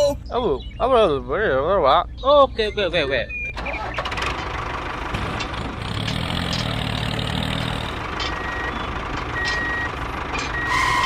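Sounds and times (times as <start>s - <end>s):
vehicle engine droning: 3.2s - 11.0s.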